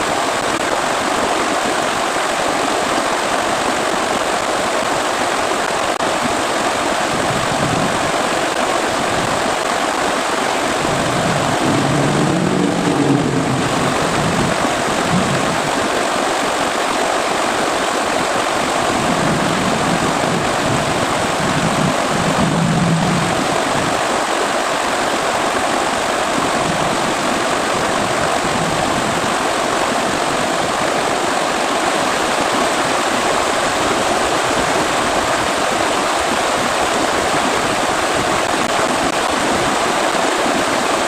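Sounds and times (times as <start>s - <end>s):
heavy rain falling: 0.0s - 41.0s.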